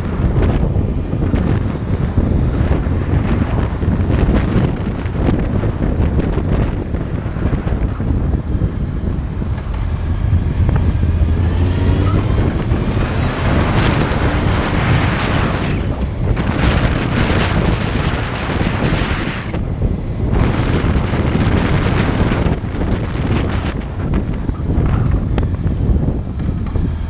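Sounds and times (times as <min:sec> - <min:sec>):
motorcycle engine drone: 0:00.0 - 0:27.0
wind buffeting microphone: 0:00.0 - 0:27.0.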